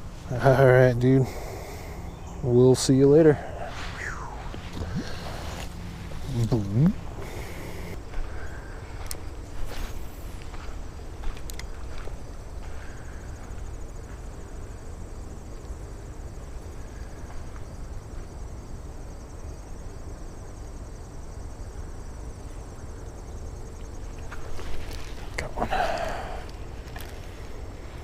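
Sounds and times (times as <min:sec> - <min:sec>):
insects trilling: 0:00.0 - 0:28.0
low rumble: 0:03.4 - 0:09.0.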